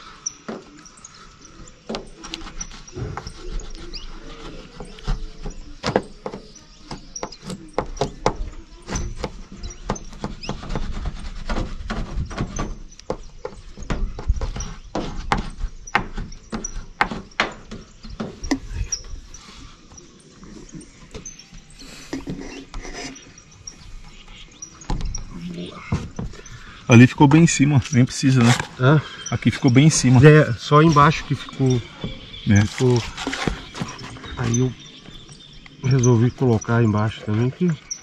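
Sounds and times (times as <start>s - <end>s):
sharp knocks and clicks: 1.6s - 19.1s.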